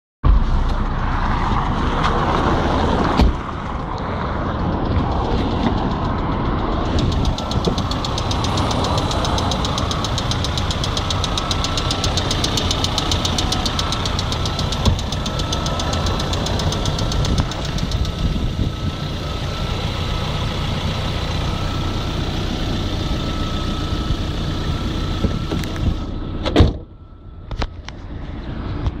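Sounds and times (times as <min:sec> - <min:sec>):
loud thump: 0:03.2 - 0:03.4
car engine knocking: 0:03.4 - 0:25.8.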